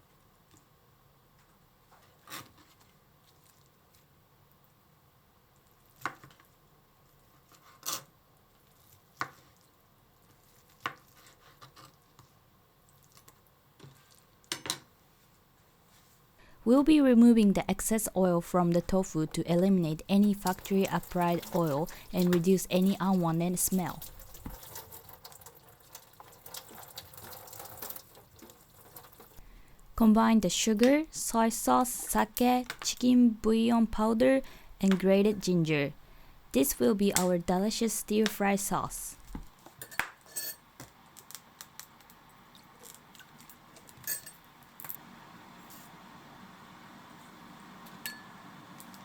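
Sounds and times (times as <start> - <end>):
water running in a sink: 20.1 - 29.4.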